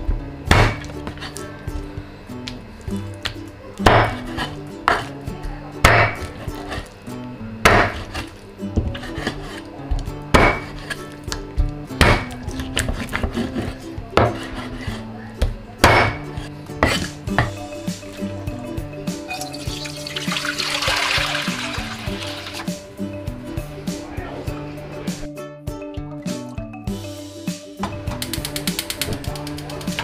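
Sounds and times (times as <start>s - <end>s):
cleaver chopping on wooden board: 0.5s - 1.2s, 3.8s - 5.1s, 5.8s - 6.9s, 7.6s - 8.2s, 10.3s - 11.0s, 12.0s - 14.8s, 15.8s - 16.2s.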